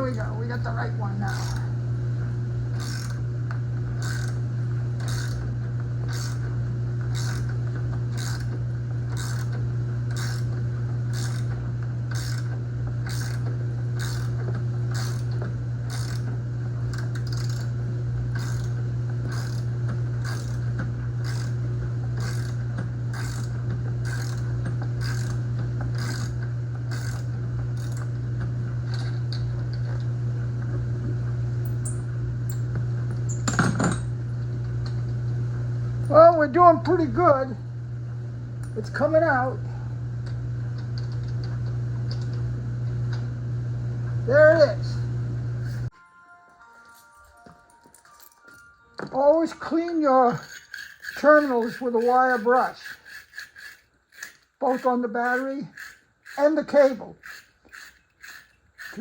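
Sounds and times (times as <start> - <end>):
steady low hum: 0.0 - 45.9
ratchet wrench clicking: 2.8 - 3.2, 4.0 - 4.4, 11.2 - 11.5, 12.1 - 12.5, 14.0 - 14.3, 19.3 - 20.6, 21.2 - 21.5, 22.2 - 24.4, 25.0 - 25.4, 26.0 - 26.3, 50.3 - 59.0.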